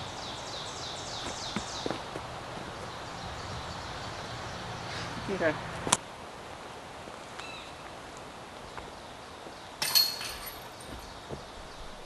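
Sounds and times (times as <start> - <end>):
disc striking basket chains: 9.8 - 11.1.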